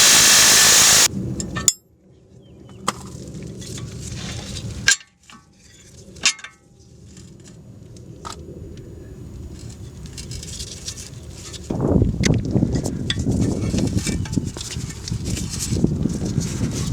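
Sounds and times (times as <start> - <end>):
metal scraping and handling: 12.7 - 16.9.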